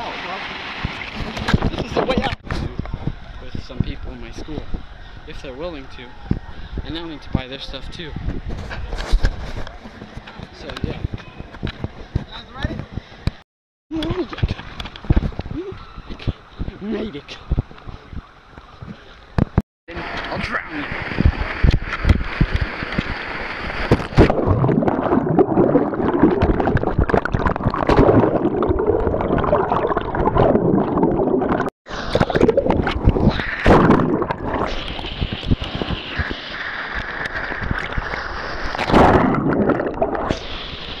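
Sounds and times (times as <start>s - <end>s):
water sloshing and gurgling: 0.0s - 5.2s, 20.2s - 40.6s.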